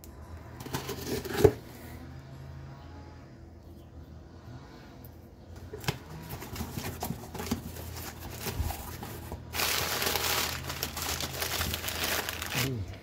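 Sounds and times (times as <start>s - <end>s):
paper packaging rustling: 5.8s - 13.0s
paper crinkling: 6.3s - 12.8s.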